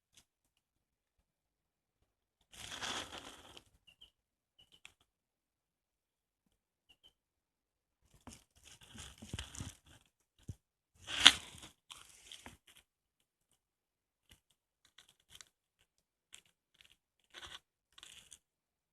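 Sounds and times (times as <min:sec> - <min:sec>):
rustling and crunching: 0:02.5 - 0:04.0, 0:08.0 - 0:12.9, 0:14.2 - 0:18.5.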